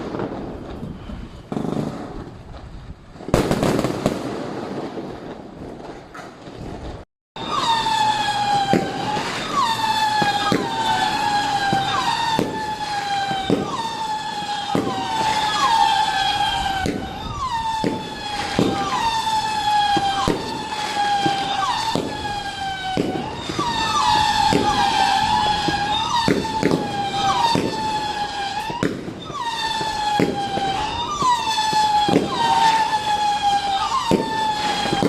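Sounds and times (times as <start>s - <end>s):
fireworks cracking and popping: 0.0s - 35.0s
siren-like wail: 7.4s - 35.0s.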